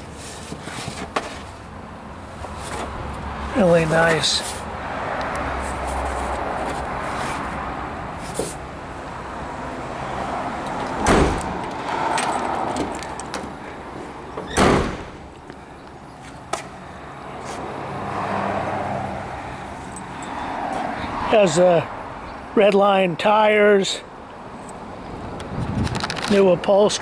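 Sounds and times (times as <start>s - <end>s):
car door thumps: 10.8s - 11.9s, 14.4s - 15.5s.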